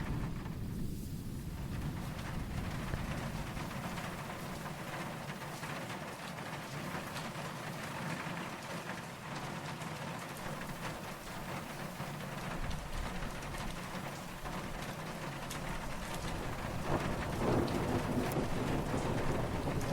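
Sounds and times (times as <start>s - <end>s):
distant thunder rumble: 0.0s - 5.6s, 10.5s - 19.9s
raindrops ticking: 0.0s - 19.9s
steady rain falling: 0.0s - 19.9s.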